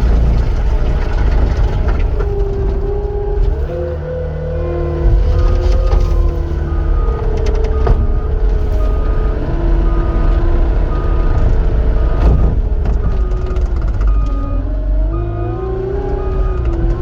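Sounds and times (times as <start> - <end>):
skid steer diesel engine: 0.0 - 17.0
backup alarm beeping: 4.3 - 17.0.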